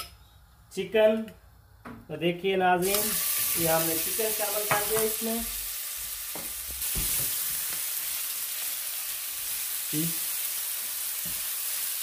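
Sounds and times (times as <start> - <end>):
chicken sizzling in oil: 2.8 - 12.0
spatula knocking in pan: 4.6 - 5.2.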